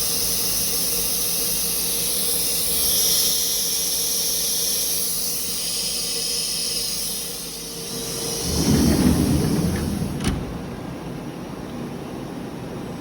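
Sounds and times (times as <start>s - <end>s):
machine high-pitched hiss: 0.0s - 10.1s.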